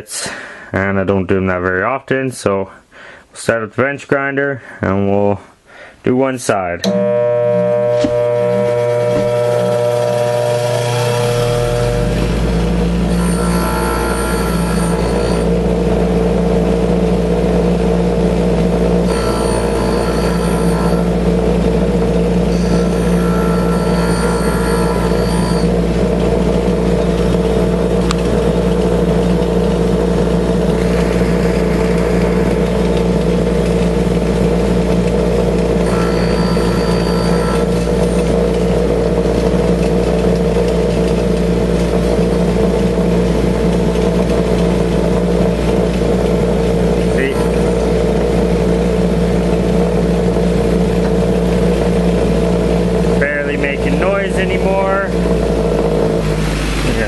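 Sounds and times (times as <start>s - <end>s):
drill bit grinding hiss: 6.8s - 16.2s, 18.1s - 45.4s, 46.4s - 49.1s
bench grinder motor humming: 6.8s - 57.0s.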